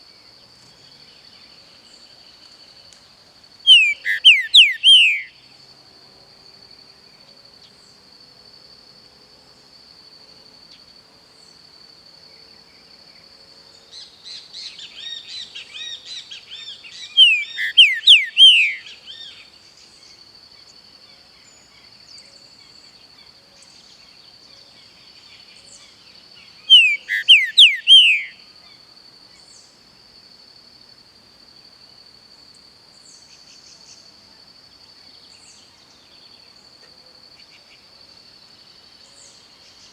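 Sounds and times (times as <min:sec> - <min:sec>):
bird whistled song: 0:03.7 - 0:05.4, 0:14.3 - 0:19.4, 0:26.6 - 0:28.4.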